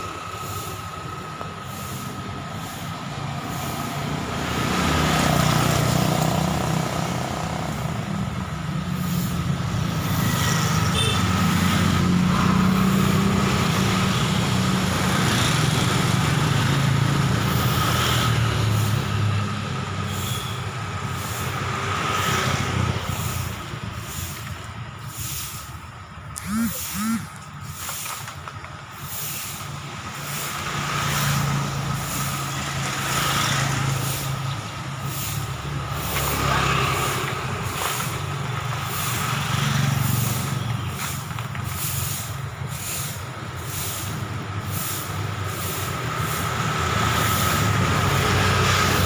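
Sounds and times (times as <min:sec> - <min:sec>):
heavy engine rumble: 0:00.0 - 0:49.0
vehicles passing: 0:00.0 - 0:49.0
steady thin high tone: 0:26.4 - 0:27.4.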